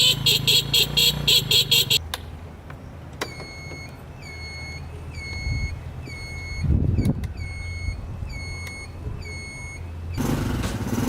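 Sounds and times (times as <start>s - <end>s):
high electronic chirping alarm: 3.3s - 10.2s.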